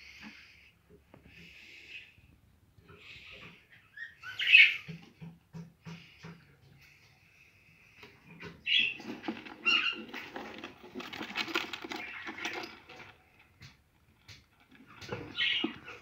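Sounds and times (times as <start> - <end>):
budgerigar chirps: 3.9 - 4.9
scratchy pattering: 8.6 - 16.0.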